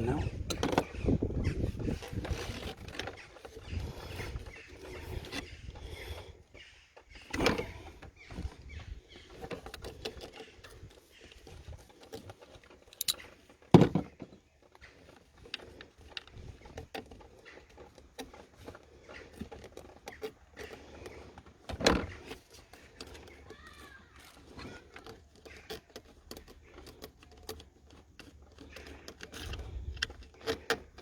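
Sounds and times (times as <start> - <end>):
tools tapping on engine parts: 9.3 - 14.3.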